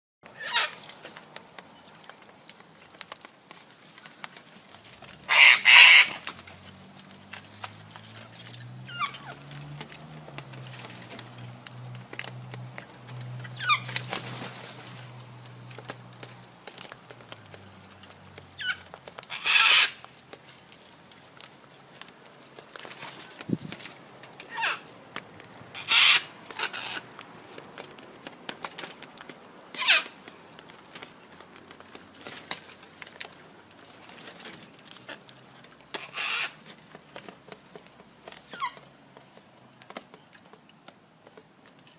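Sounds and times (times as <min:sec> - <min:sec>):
cockatoo screeching: 0:00.4 - 0:00.8, 0:05.3 - 0:06.3, 0:08.9 - 0:09.4, 0:13.6 - 0:14.0, 0:18.6 - 0:20.0, 0:24.5 - 0:24.9, 0:25.8 - 0:27.0, 0:29.7 - 0:30.2, 0:36.0 - 0:36.6
cockatoo squawks: 0:00.4 - 0:00.8, 0:05.3 - 0:06.3, 0:08.9 - 0:09.4, 0:13.6 - 0:14.0, 0:18.6 - 0:20.0, 0:24.5 - 0:24.9, 0:25.8 - 0:27.0, 0:29.7 - 0:30.2, 0:36.0 - 0:36.6
sharp clicks of bird eating: 0:00.6 - 0:41.9.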